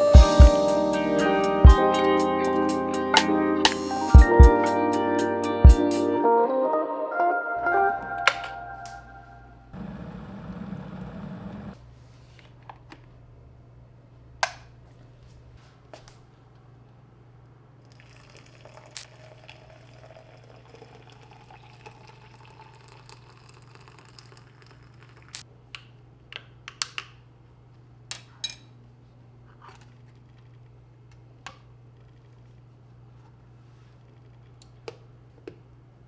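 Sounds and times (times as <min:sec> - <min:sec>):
liquid pouring into cup: 0:17.9 - 0:25.4.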